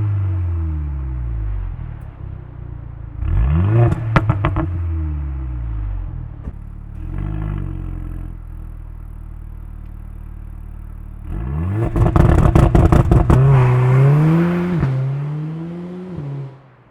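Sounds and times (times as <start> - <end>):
car engine revving: 0.0 - 16.9
sharp exhaust cracks: 11.1 - 15.0.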